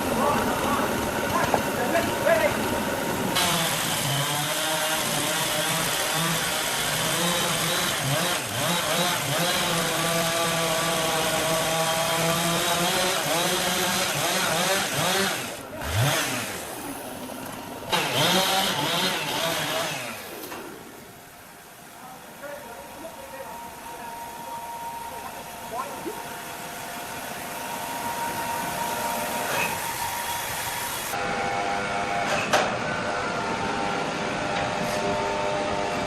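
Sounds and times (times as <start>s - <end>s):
chainsaw engine running: 0.0s - 20.3s.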